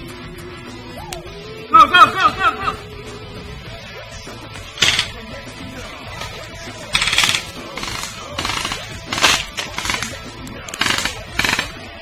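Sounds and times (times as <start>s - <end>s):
background music: 0.0s - 12.0s
rapid airsoft gunfire: 4.7s - 5.2s, 6.9s - 12.0s.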